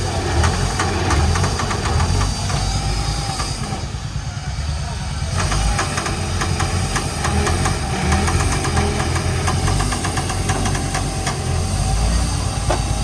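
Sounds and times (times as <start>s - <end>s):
diesel engine rumbling: 0.0s - 13.0s
fast clatter of sharp clicks: 5.4s - 11.4s.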